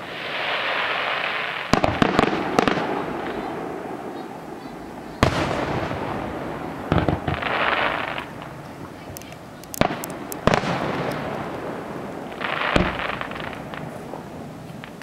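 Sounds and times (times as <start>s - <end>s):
fireworks bangs: 0.0s - 15.0s
fireworks crackling: 0.0s - 15.0s
fireworks hissing: 0.0s - 15.0s.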